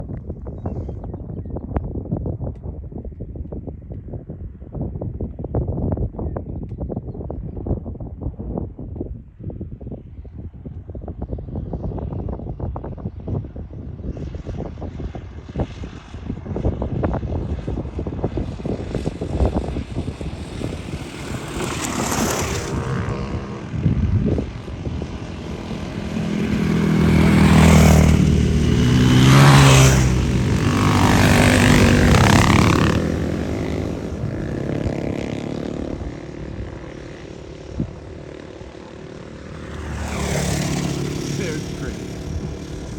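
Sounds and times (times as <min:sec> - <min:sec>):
motorcycle engines passing: 0:16.6 - 0:42.9.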